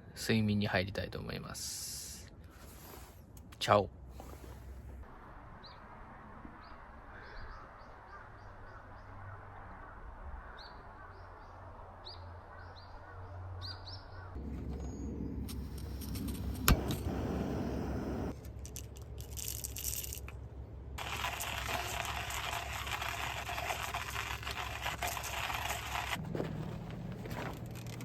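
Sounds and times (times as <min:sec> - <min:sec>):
faint low hum: 0:14.4 - 0:19.3.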